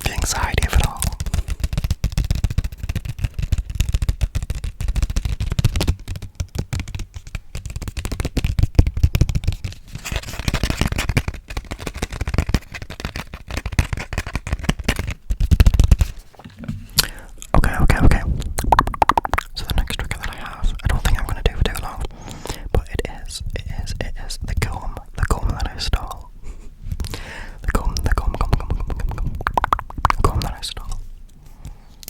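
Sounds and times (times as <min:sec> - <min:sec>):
scratchy rubbing: 0:00.0 - 0:17.0, 0:22.8 - 0:26.6, 0:27.6 - 0:31.2
fast tapping near microphone: 0:00.0 - 0:31.1.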